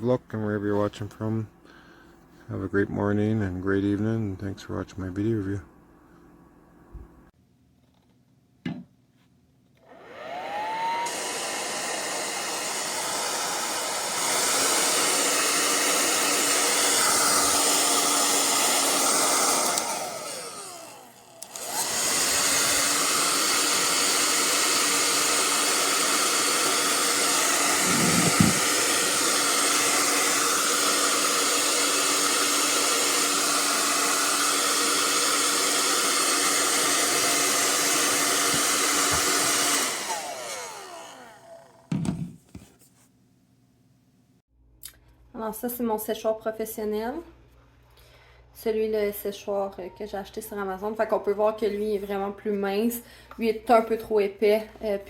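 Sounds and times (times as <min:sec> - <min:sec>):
brief knock: 0:08.6 - 0:08.9
hair dryer blowing: 0:09.8 - 0:42.3.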